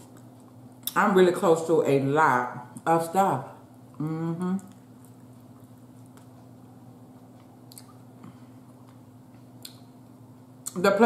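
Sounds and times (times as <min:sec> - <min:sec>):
quiet chewing: 0:00.0 - 0:01.0, 0:03.8 - 0:10.8
steady low hum: 0:00.0 - 0:11.0.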